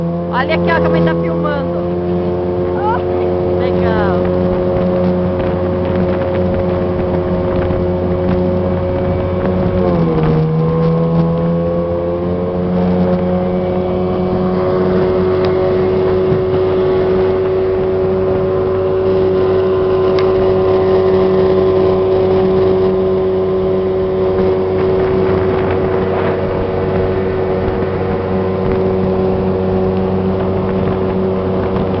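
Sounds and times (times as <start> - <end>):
motorboat engine running: 0.0 - 32.0.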